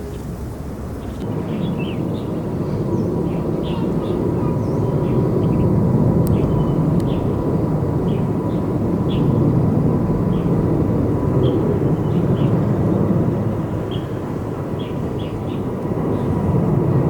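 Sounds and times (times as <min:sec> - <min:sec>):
jet airliner engine rumble: 0:00.0 - 0:17.0.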